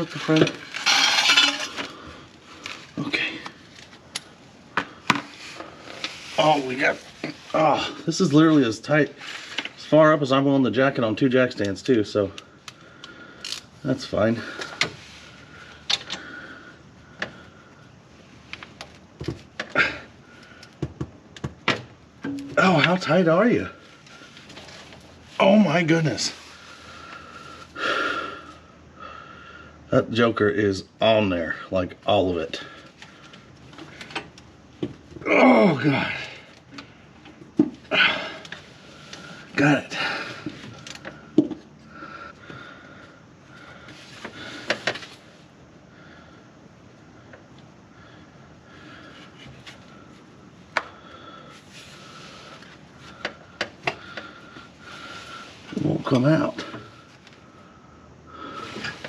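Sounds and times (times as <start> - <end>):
hand tools clinking and knocking: 0.0 - 1.9.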